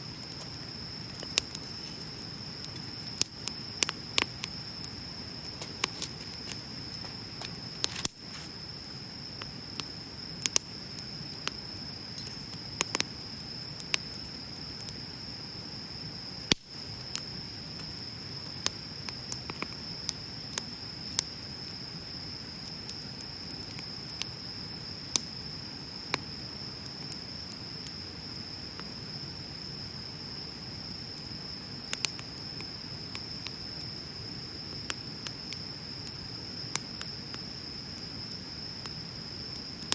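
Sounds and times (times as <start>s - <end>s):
bonfire crackling and popping: 0.0s - 39.9s
insect trill: 0.0s - 39.9s.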